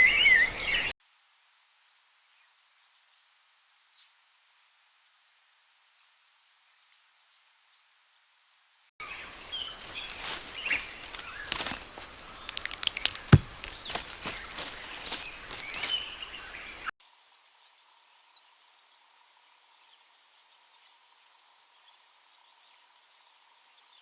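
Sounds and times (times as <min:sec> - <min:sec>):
wild birds chirping: 0:09.0 - 0:16.9
sharp clicks and cracks: 0:10.2 - 0:15.7.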